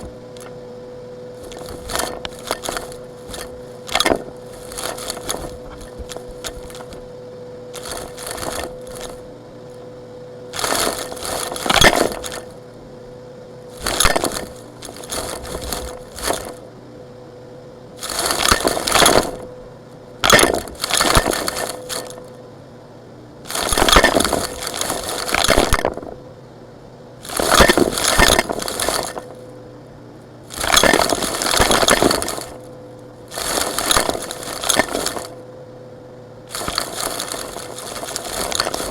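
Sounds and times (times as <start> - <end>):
faint steady hum: 0.0 - 38.9
brittle chunks crunching: 1.4 - 7.0, 7.8 - 9.2, 10.5 - 12.6, 13.7 - 16.6, 18.0 - 19.5, 20.2 - 22.2, 23.5 - 26.2, 27.2 - 29.4, 30.5 - 32.7, 33.3 - 35.4, 36.5 - 38.9.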